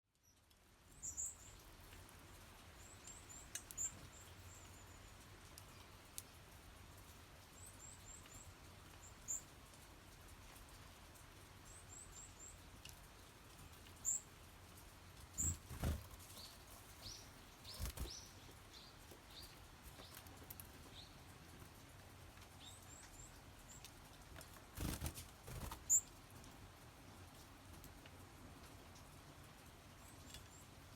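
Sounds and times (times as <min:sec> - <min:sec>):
small birds wings fluttering: 0:12.8 - 0:22.7, 0:23.6 - 0:26.6
high thin bird calls: 0:15.4 - 0:18.4.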